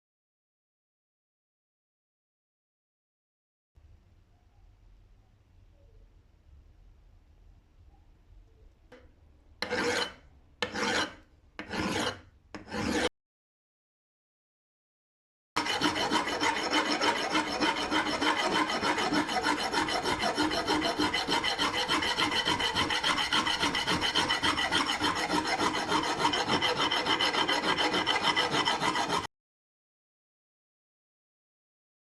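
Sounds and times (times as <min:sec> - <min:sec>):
file strokes: 0:09.6 - 0:13.1, 0:15.6 - 0:29.3.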